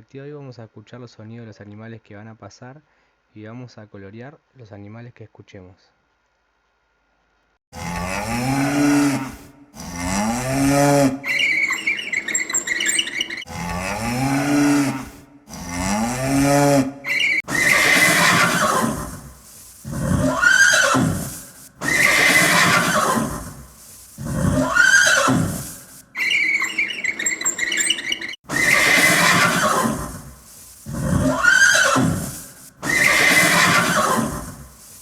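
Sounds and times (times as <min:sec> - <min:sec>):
cow mooing: 0:07.8 - 0:26.0, 0:30.9 - 0:34.8
horse whinnying: 0:08.4 - 0:34.8.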